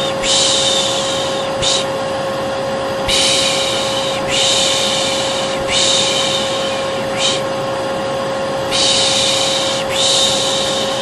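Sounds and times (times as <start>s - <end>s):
person shushing: 0.0s - 1.9s, 3.1s - 7.5s, 8.7s - 11.0s
vacuum cleaner humming: 0.0s - 11.0s.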